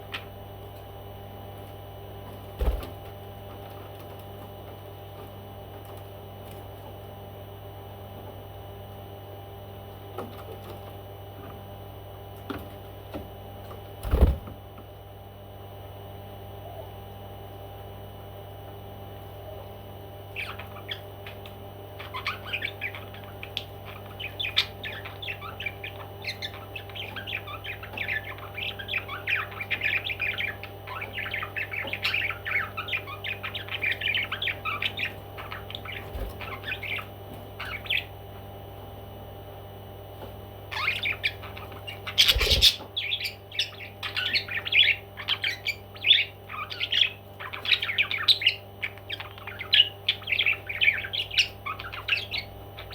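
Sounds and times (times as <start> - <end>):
steady low hum: 0.0 - 52.9
parrot chirping and squawking: 20.3 - 38.1, 40.7 - 52.9.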